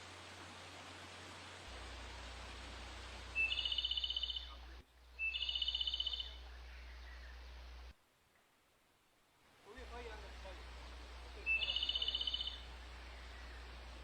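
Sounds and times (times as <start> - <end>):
faint hiss: 0.0 - 14.0
steady low hum: 9.5 - 14.0.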